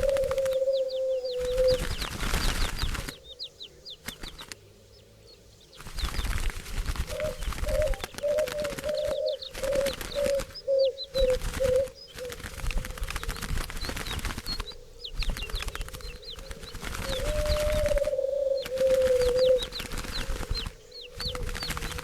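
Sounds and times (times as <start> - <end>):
dove cooing: 0.0 - 2.1, 7.0 - 13.6, 14.6 - 22.0
wings flapping: 0.0 - 3.3, 4.0 - 4.6, 5.8 - 22.0
small birds chirping: 0.0 - 22.0.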